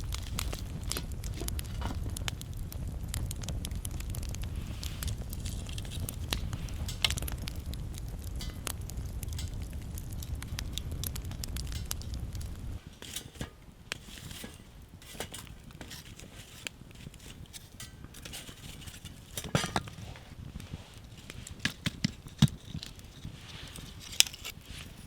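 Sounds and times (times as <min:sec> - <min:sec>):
low rumble: 0:00.0 - 0:13.0
wood fire crackling: 0:00.0 - 0:25.0.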